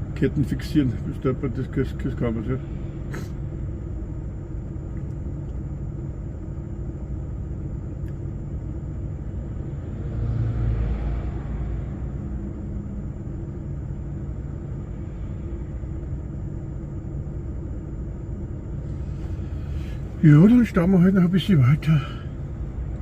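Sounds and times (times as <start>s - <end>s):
lorry engine and road rumble: 0.0s - 23.0s.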